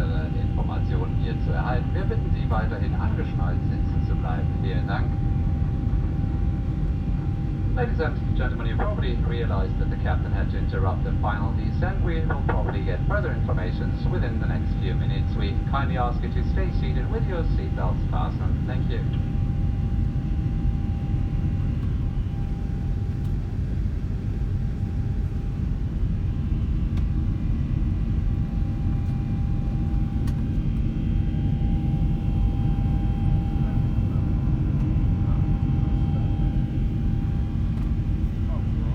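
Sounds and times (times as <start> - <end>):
steady whine: 0.0 - 24.0
low engine rumble: 0.0 - 27.4.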